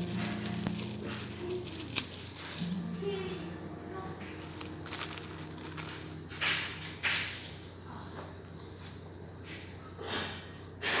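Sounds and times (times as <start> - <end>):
brief rustling: 0.0 - 2.9, 4.4 - 6.1.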